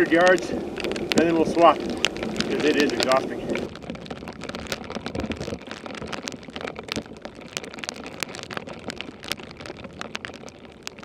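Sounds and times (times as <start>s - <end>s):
footsteps crunching in snow: 0.0s - 3.9s.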